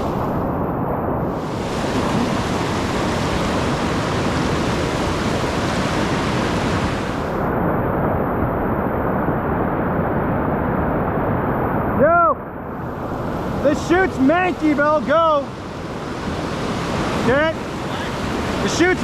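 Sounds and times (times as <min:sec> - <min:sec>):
river whitewater rushing: 0:00.0 - 0:07.5, 0:12.6 - 0:19.0.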